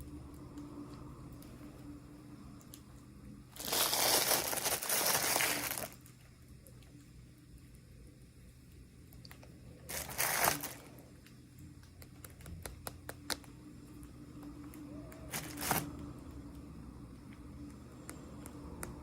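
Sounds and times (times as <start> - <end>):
packaging wrapper crinkling and tearing: 3.6 - 6.1, 9.9 - 11.0, 15.3 - 15.9
small pieces clicking and tapping: 11.2 - 13.6.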